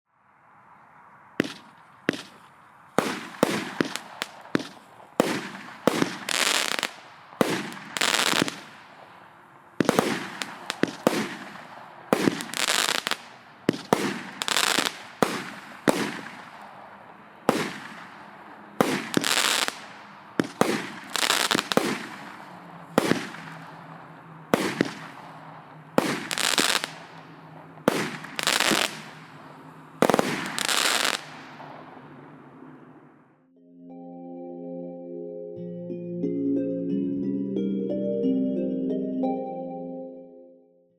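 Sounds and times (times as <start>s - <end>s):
firework battery firing: 1.4s - 32.1s.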